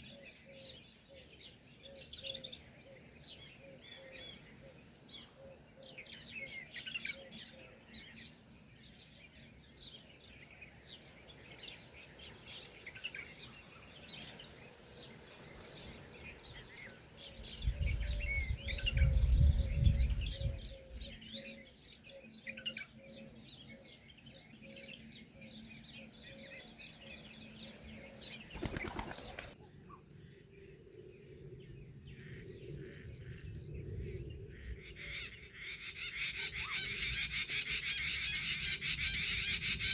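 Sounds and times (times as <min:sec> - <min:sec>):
birds chirping: 0:00.0 - 0:39.9
wings flapping: 0:28.5 - 0:29.6.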